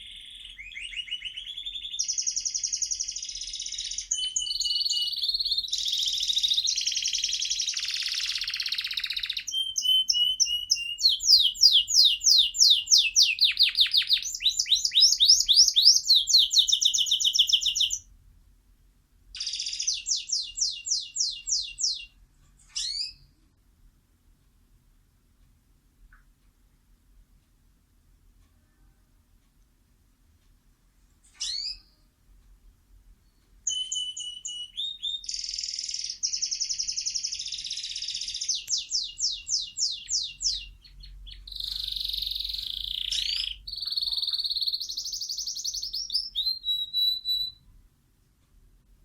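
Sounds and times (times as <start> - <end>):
songbird singing trills: 0.0 - 18.0, 19.4 - 22.2, 33.3 - 47.6.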